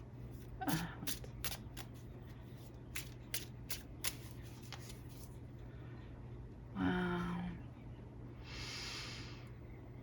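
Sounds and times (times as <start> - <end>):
faint low hum: 0.0 - 10.0
cards flicking and snapping: 0.7 - 2.0, 2.9 - 5.0.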